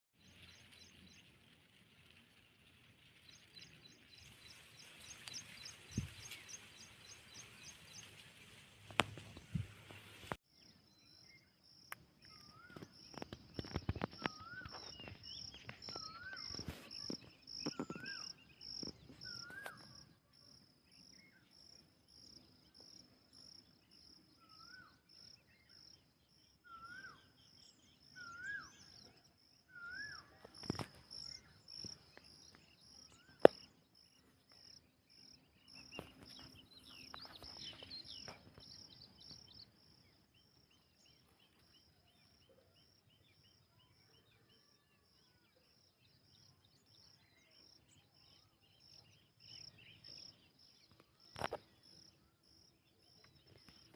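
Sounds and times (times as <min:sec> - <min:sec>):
bird whistled call: 0:19.2 - 0:19.9, 0:26.6 - 0:27.3, 0:28.2 - 0:29.0, 0:29.7 - 0:30.4.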